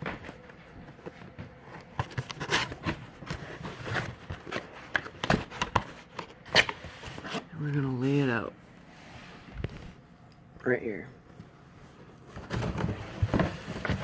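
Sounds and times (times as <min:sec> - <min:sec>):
packaging rustling and scraping: 0:00.0 - 0:07.6, 0:12.2 - 0:14.0.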